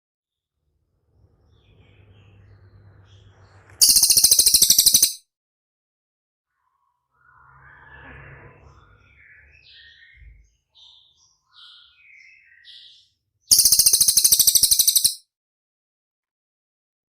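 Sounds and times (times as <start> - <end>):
songbird chirps and whistles: 3.7 - 5.2, 8.7 - 15.2
fast high rattling trill: 3.8 - 5.2, 13.5 - 15.2.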